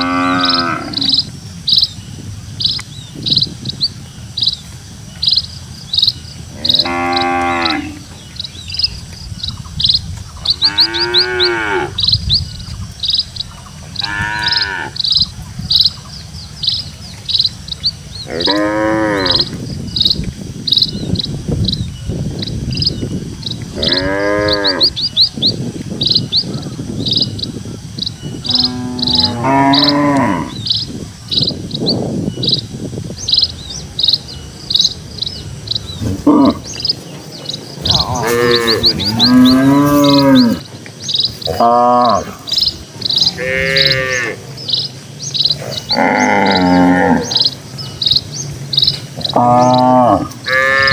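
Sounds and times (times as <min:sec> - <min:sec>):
cattle mooing: 0:00.0 - 0:01.2, 0:06.6 - 0:08.1, 0:10.6 - 0:12.0, 0:14.0 - 0:15.0, 0:18.3 - 0:19.6, 0:23.8 - 0:24.9, 0:28.4 - 0:30.6, 0:36.0 - 0:36.8, 0:37.8 - 0:40.7, 0:41.4 - 0:44.5, 0:45.5 - 0:47.6, 0:49.1 - 0:50.9
high rhythmic chirping: 0:19.2 - 0:50.9.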